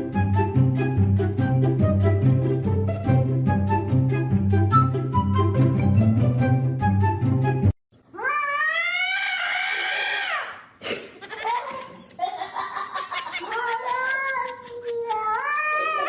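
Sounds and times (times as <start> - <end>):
cat yowling: 8.2 - 10.6, 15.1 - 16.0.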